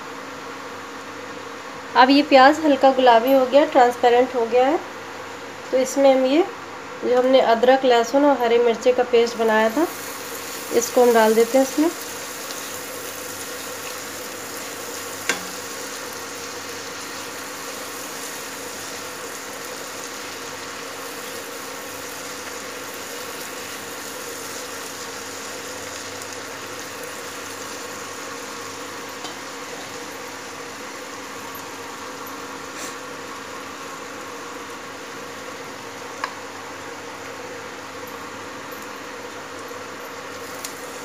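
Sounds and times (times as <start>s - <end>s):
onions sizzling in a pan: 8.8s - 41.0s.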